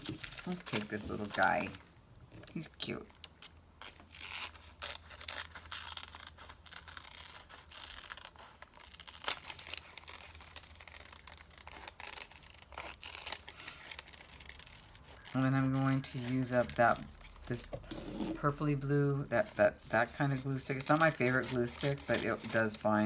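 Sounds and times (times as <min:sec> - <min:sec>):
paper rustling: 0:00.0 - 0:01.9, 0:03.2 - 0:18.6, 0:19.4 - 0:23.0
scissors snipping paper: 0:20.2 - 0:22.8.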